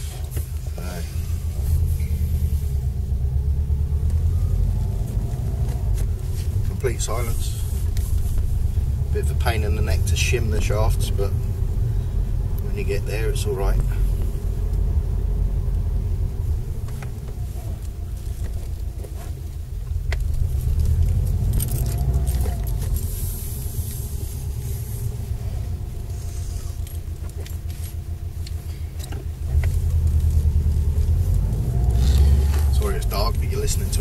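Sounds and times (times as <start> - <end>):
car engine and road rumble: 0.0 - 34.0
light clicks and rattles: 16.8 - 23.2.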